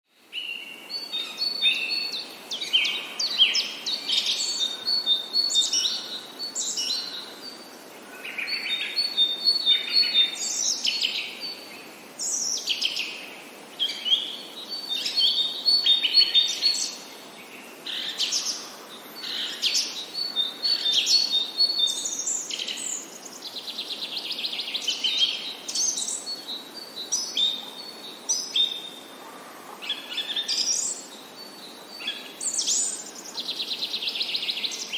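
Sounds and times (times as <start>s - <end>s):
songbirds singing: 0.1s - 34.9s.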